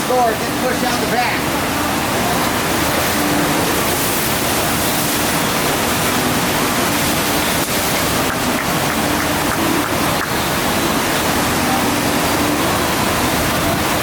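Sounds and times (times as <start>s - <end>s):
loud rush of pumped water: 0.0s - 14.0s.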